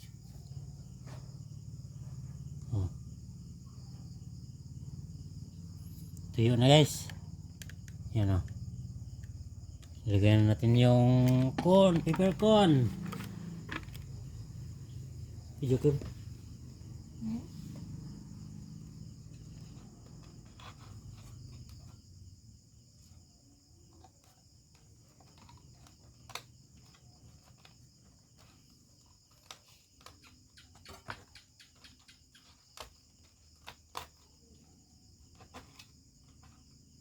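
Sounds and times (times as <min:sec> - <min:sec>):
crickets trilling: 0:00.0 - 0:37.0
small clicks and taps: 0:07.1 - 0:08.6.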